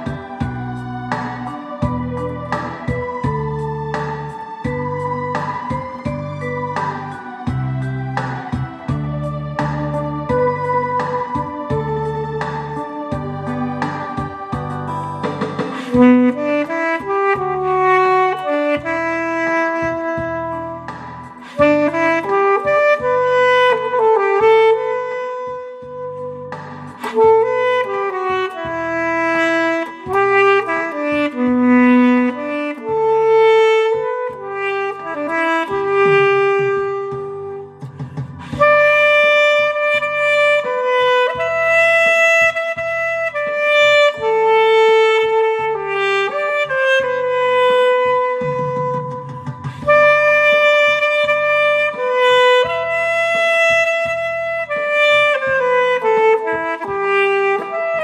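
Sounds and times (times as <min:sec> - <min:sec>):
backing track bass pulse: 0:00.0 - 0:24.1
alto saxophone melody: 0:00.0 - 0:58.0.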